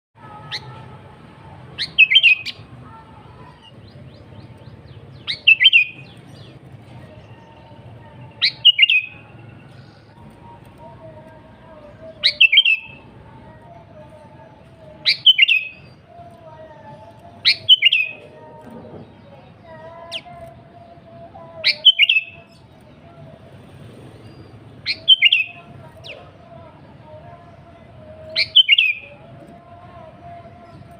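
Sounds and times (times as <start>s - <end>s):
bird singing warbled phrases: 0.2s - 23.5s, 24.1s - 30.9s
bird calling: 8.3s - 9.3s, 17.4s - 18.2s, 21.6s - 22.5s, 24.8s - 26.3s.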